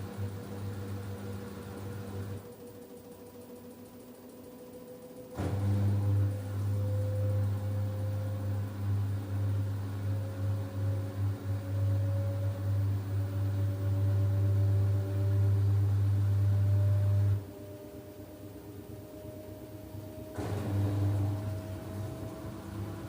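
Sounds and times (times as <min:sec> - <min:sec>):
motor whine rising in pitch: 0:00.0 - 0:23.0.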